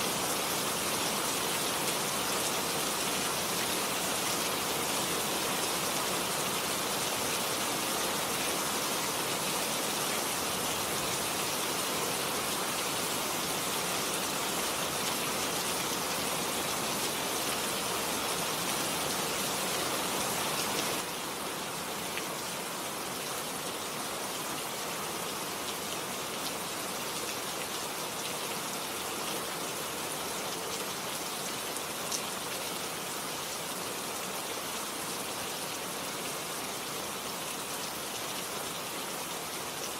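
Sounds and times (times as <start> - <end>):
heavy rain pouring: 0.0 - 23.2.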